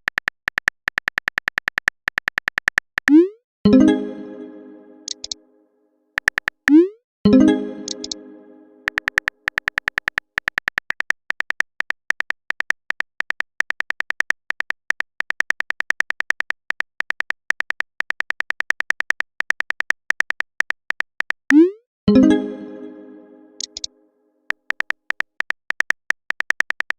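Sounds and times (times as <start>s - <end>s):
clicky typing beeps: 2.6s - 3.4s, 5.0s - 5.4s, 6.2s - 8.2s, 8.8s - 10.1s, 17.6s - 21.8s, 23.6s - 23.9s, 24.7s - 26.9s.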